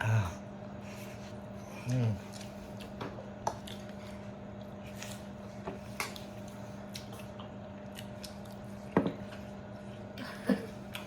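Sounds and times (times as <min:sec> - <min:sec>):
steady low hum: 0:00.0 - 0:11.0
wet chewing mouth sounds: 0:01.7 - 0:08.9.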